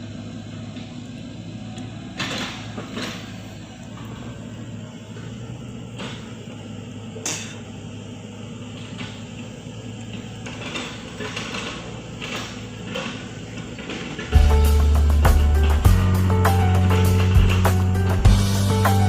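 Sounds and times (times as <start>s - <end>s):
machine humming: 0.0s - 19.0s
knocks and clanks: 2.1s - 4.4s, 5.2s - 6.6s, 10.1s - 19.0s
loud music: 14.4s - 19.0s.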